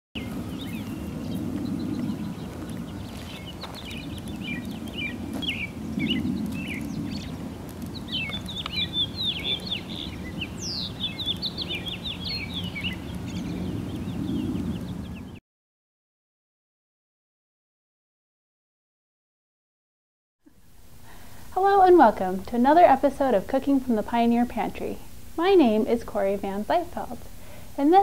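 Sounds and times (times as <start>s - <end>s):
low outdoor rumble: 0.2s - 15.4s, 20.5s - 28.0s
small birds chirping: 0.2s - 15.4s.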